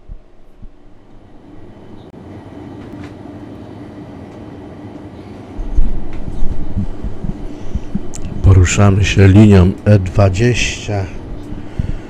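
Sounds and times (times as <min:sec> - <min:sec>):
train rumble: 0:00.0 - 0:12.0
loud deep rumble: 0:05.6 - 0:09.2.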